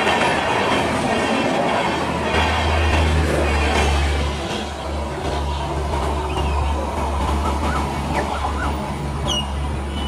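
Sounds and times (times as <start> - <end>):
passenger train rumbling: 0.0 - 10.0.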